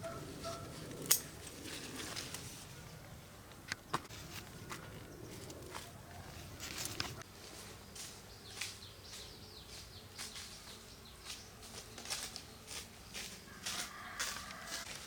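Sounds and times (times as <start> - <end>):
rustling and soft crackling: 0.2 - 8.8.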